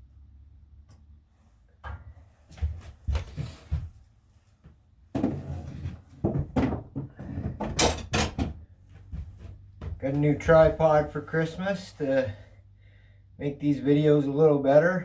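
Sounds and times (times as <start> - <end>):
metal parts knocking and clunking: 6.3 - 8.7.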